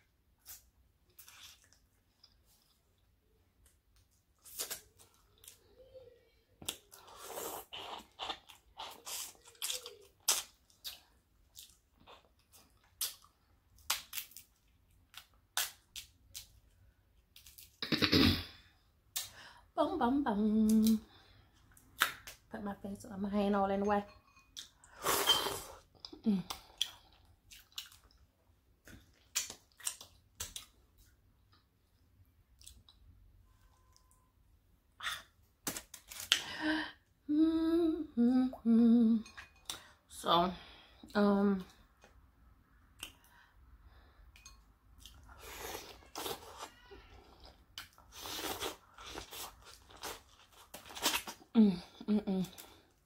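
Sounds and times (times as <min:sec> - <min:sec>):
person chewing food: 0:00.4 - 0:05.6, 0:06.6 - 0:17.8, 0:24.3 - 0:34.3, 0:44.1 - 0:51.5.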